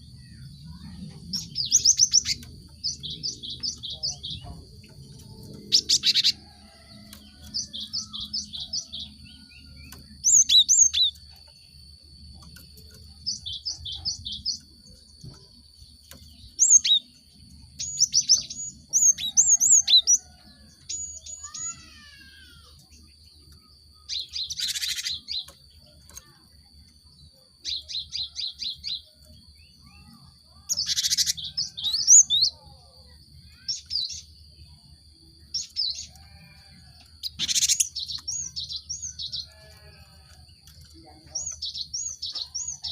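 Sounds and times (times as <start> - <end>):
bird chipping calls: 0.0 - 11.6, 17.8 - 23.0, 24.0 - 25.5, 29.8 - 32.9, 33.5 - 34.3, 37.2 - 40.0.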